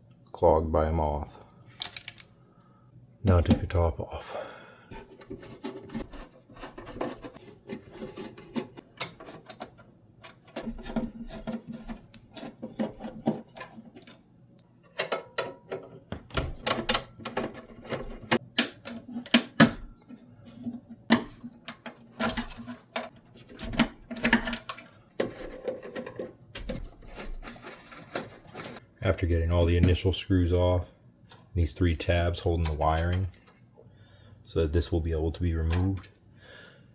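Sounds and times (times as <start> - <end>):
metal casing clicks and knocks: 4.9 - 14.2, 14.9 - 28.8.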